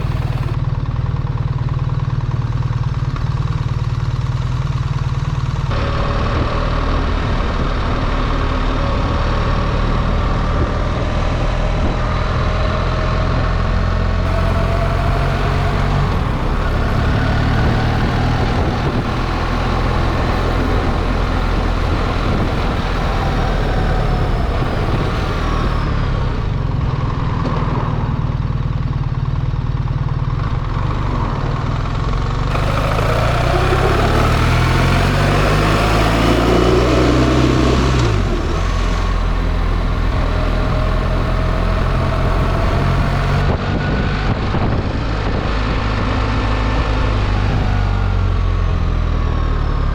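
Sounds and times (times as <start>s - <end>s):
wind and road noise: 0.0s - 0.7s, 5.7s - 28.9s, 30.2s - 49.9s
motorcycle engine running: 0.0s - 11.4s, 14.1s - 25.9s, 28.7s - 43.6s.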